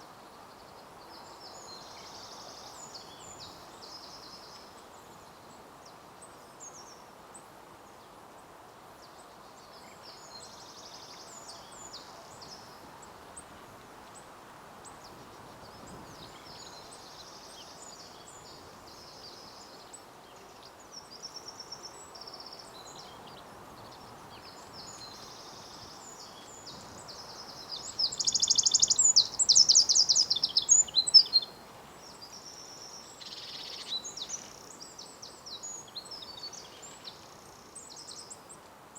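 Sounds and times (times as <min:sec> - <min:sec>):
songbirds singing: 0:00.0 - 0:07.0, 0:14.8 - 0:38.6
low hum of outdoor noise: 0:00.0 - 0:38.9.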